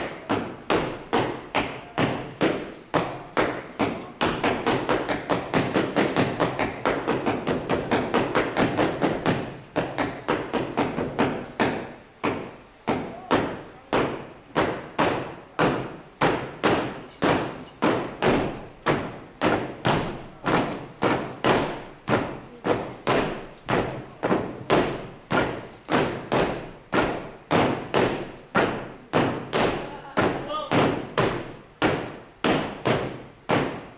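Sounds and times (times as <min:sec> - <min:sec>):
wooden handles knocking rhythmically: 0:00.0 - 0:33.9.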